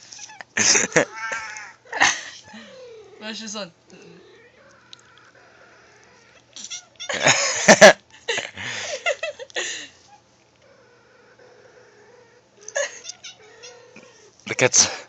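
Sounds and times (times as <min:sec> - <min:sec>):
recorded cat cries over phone speaker: 0:00.2 - 0:01.8.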